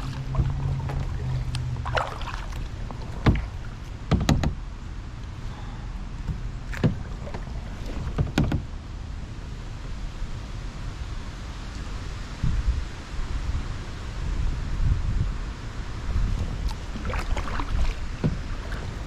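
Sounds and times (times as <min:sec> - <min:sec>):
paddle knocks and splashes: 0:00.0 - 0:04.6, 0:06.2 - 0:08.8, 0:16.3 - 0:19.0
wind rumble on microphone: 0:00.0 - 0:19.0.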